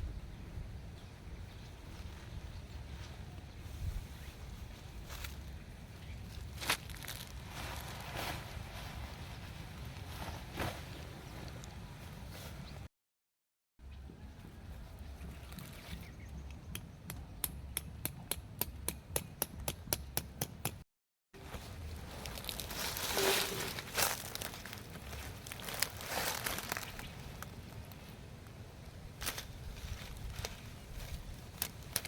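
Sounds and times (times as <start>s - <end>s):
crinkling rustling handling: 6.4s - 11.8s, 21.4s - 28.1s, 29.2s - 32.0s.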